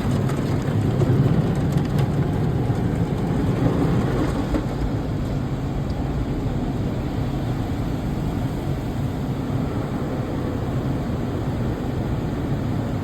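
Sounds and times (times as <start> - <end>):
car wash machinery rushing: 0.0 - 13.0.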